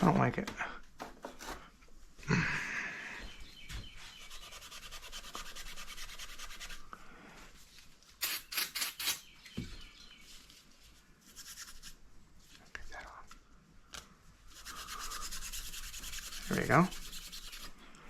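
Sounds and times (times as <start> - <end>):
rubbing strokes on engine part: 4.1 - 6.9, 14.5 - 17.7
sharp scrapes: 8.2 - 9.3.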